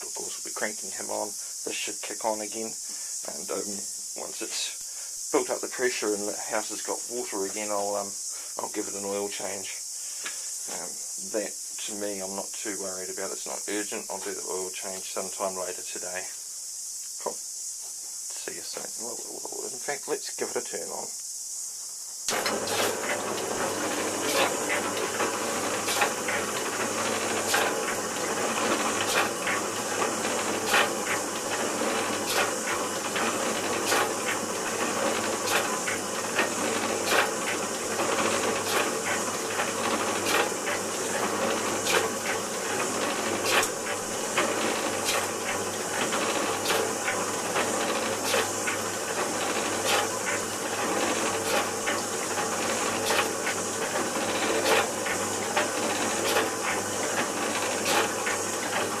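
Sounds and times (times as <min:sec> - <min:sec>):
pump motor hum and hiss: 0:00.0 - 0:59.0
pump stroke knocking: 0:22.3 - 0:59.0.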